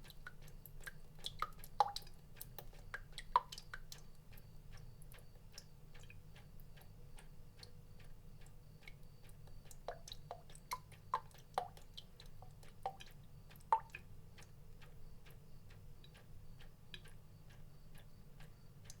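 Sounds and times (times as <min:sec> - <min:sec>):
water drops dripping: 0:00.0 - 0:15.0, 0:16.0 - 0:17.2.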